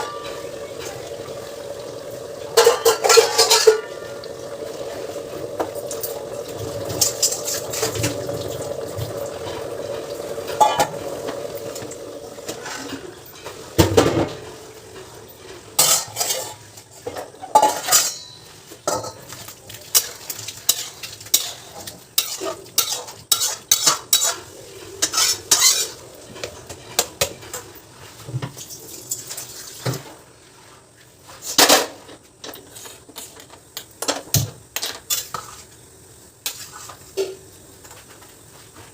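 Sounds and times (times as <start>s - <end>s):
steady hum: 0.0s - 16.1s
metal utensils clinking: 0.0s - 27.8s
spoon scraping a metal pot: 20.7s - 27.0s.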